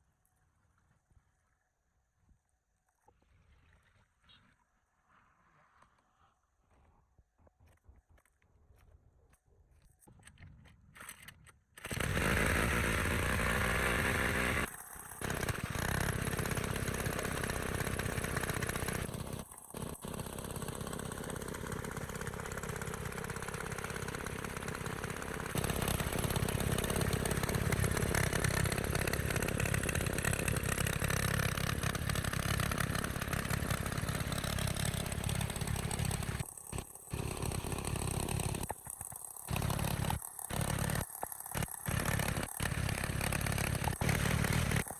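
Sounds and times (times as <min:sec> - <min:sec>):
water pump engine running: 0:11.8 - 0:44.9.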